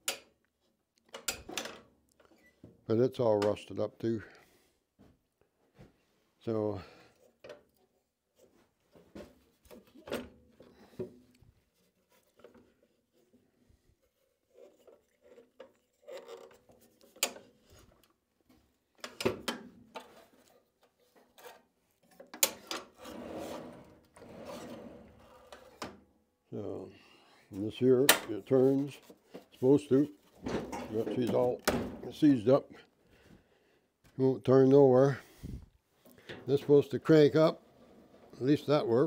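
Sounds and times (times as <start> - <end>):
metal saw parts clicking and scraping: 14.5 - 17.5.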